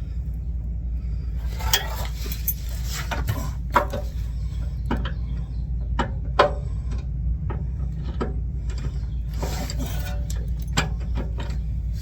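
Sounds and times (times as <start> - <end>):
steady low hum: 0.0 - 12.0
short scraping rub: 1.5 - 4.3, 9.3 - 10.6.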